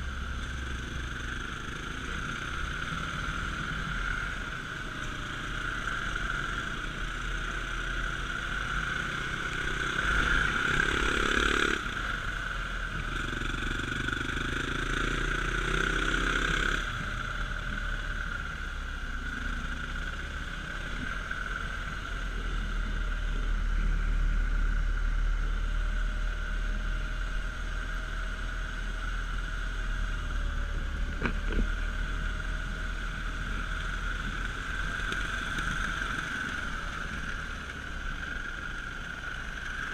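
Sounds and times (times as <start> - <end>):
dirt bike engine: 0.0 - 18.7, 29.4 - 39.9.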